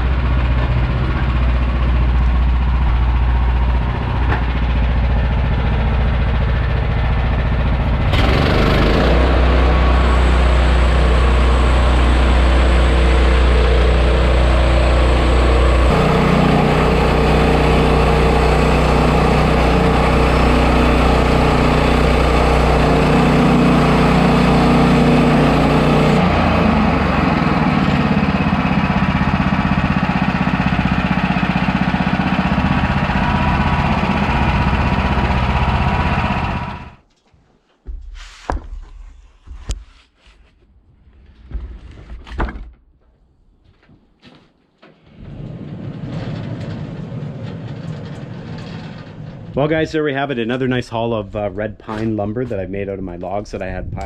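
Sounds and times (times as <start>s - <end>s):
gas engine running: 0.0s - 37.0s.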